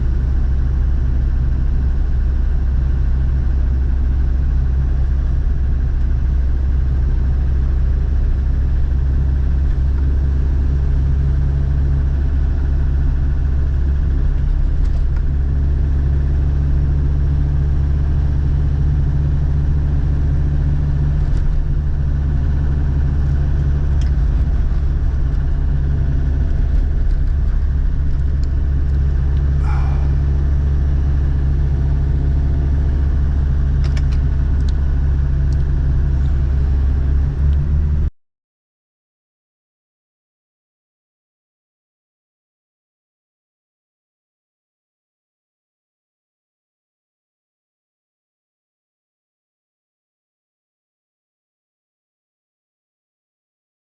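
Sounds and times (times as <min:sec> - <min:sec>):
diesel engine rumbling: 0:00.0 - 0:38.1.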